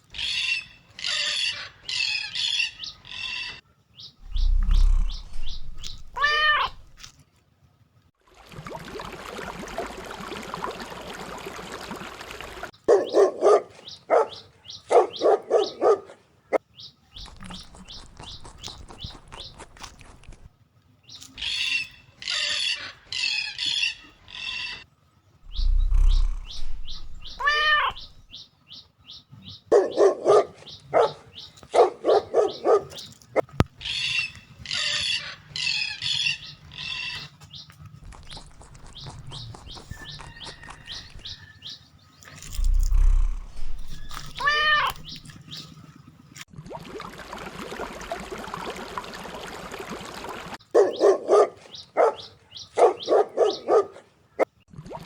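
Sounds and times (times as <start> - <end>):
high bird chirps and squawks: 0.1 - 7.0, 12.9 - 16.1, 17.1 - 20.5, 21.2 - 24.8, 25.5 - 28.4, 29.4 - 37.4, 38.0 - 45.7, 50.8 - 53.8
lower yelping calls: 4.2 - 7.0, 12.9 - 16.6, 17.2 - 20.5, 25.4 - 28.4, 29.4 - 33.2, 38.0 - 45.3, 50.8 - 54.0.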